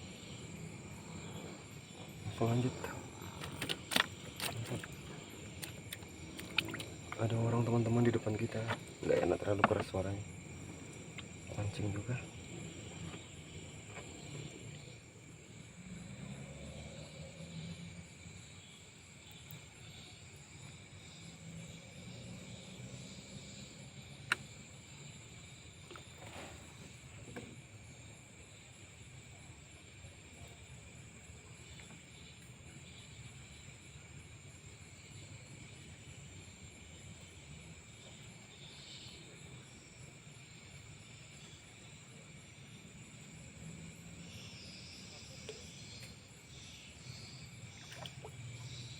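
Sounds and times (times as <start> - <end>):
crickets chirping: 0.0 - 48.9
murmur of water: 2.2 - 12.9, 47.6 - 48.9
handling noise: 2.5 - 7.4.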